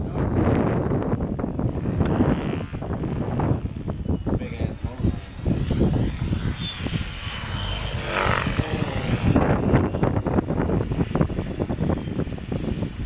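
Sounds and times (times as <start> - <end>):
model airplane propeller whining: 0.0 - 13.0
wind buffeting microphone: 0.0 - 13.0.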